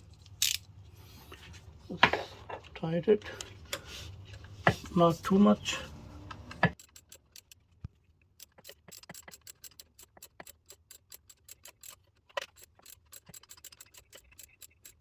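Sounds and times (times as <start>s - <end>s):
ratchet wrench clicking: 6.8s - 7.6s, 8.4s - 15.0s.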